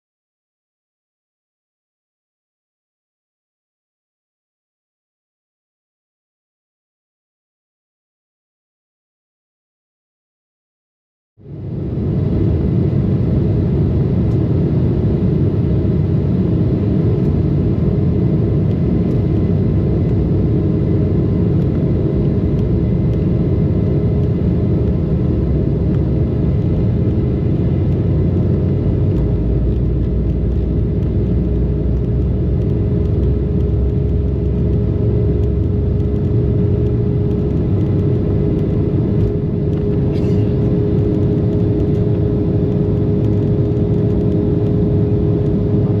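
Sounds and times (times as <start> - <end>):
deep low rumble: 11.4 - 46.0
jet airliner engines rumbling: 11.4 - 46.0.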